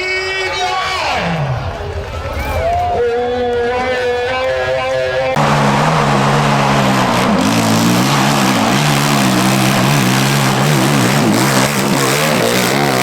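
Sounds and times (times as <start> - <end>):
dirt bike engine revving: 5.3 - 13.0.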